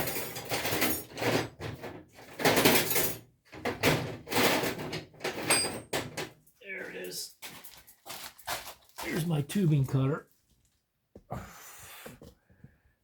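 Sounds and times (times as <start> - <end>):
tools scraping and clattering: 0.0 - 6.4.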